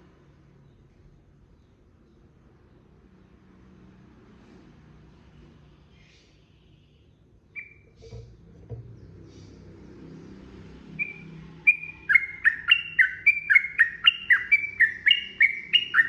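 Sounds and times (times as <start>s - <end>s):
bird calls: 7.5s - 9.7s, 11.0s - 16.0s.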